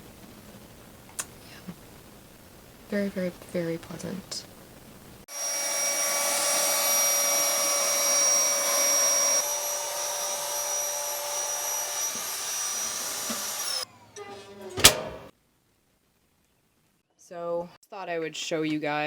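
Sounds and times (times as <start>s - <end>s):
small electric motor whining: 5.3s - 13.9s.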